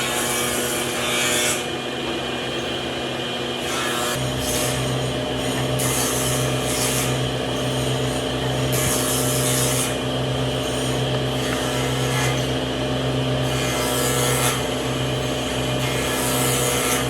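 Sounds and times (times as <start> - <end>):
power tool motor hum: 4.1 - 17.0.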